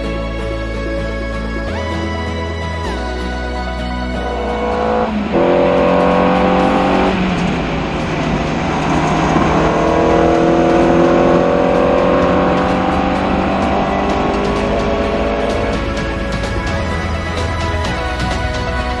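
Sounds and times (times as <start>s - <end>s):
racing car engine accelerating: 4.0s - 19.0s.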